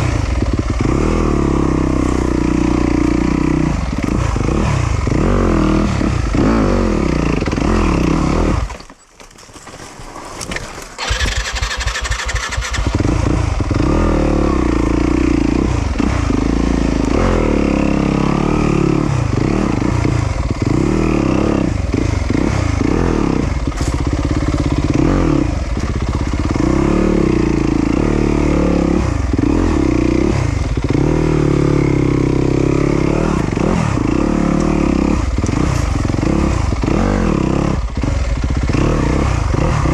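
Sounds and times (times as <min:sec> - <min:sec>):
motorcycle engine revving: 0:00.0 - 0:08.8, 0:10.9 - 0:39.9
engine cranking: 0:08.5 - 0:13.4.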